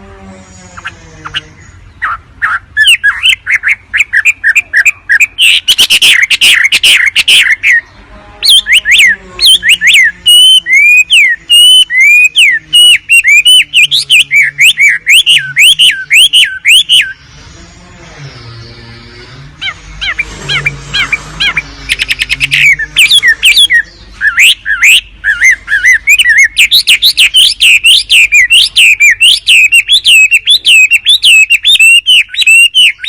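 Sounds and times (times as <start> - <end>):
slurred whistled bird notes: 0.5 - 33.0
songbird chirps and clicks: 0.8 - 17.3, 18.3 - 33.0.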